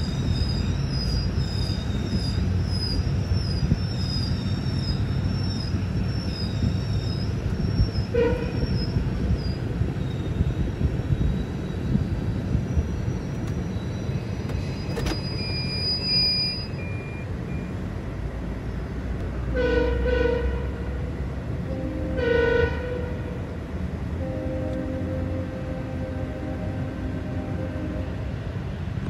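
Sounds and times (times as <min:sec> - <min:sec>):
train rumbling along track: 0:00.0 - 0:29.0
train horn blasts: 0:08.1 - 0:08.8, 0:19.5 - 0:23.5, 0:24.1 - 0:28.5.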